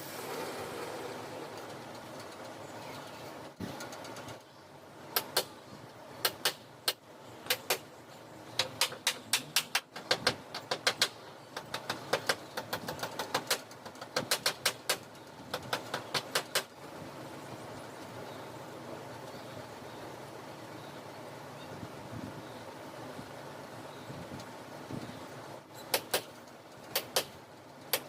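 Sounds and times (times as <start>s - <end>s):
staple gun firing staples: 25.9s - 28.0s.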